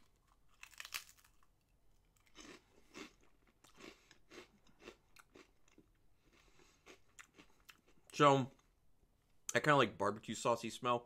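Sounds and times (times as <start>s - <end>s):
person crunching rice cracker: 0.0s - 7.9s.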